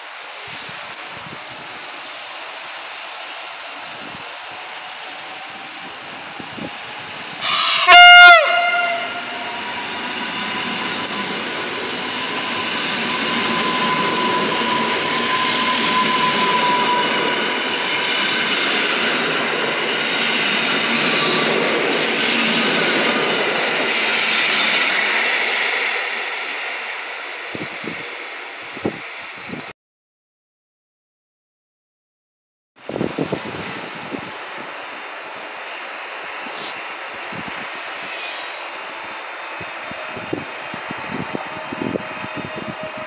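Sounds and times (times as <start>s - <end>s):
train rolling noise: 0.0s - 29.7s, 32.8s - 43.0s
train horn blast: 7.4s - 10.1s, 41.2s - 43.0s.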